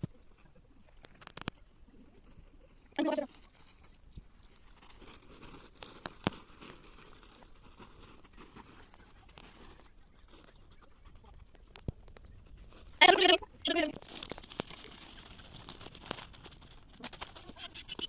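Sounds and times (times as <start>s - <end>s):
faint rustling and handling noise: 0.0s - 18.0s.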